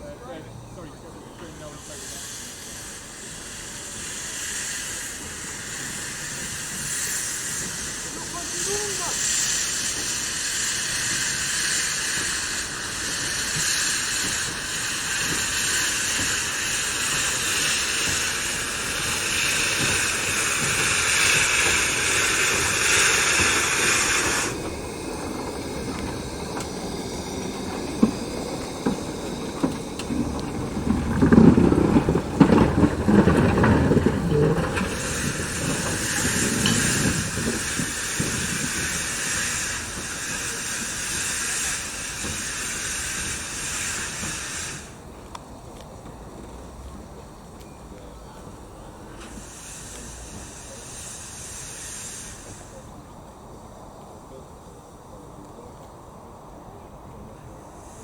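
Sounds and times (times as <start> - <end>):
steam locomotive hissing: 0.0 - 58.0
low rumble with sharp knocks: 27.9 - 38.8.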